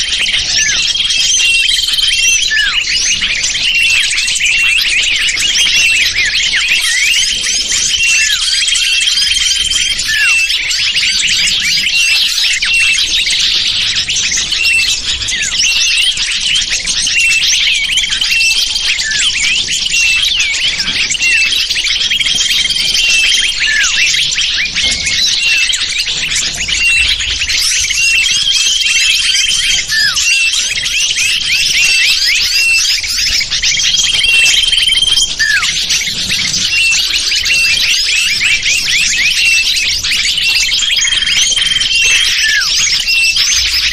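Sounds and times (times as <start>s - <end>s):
small birds chirping: 0.0s - 43.9s
whistled notes: 17.2s - 43.9s.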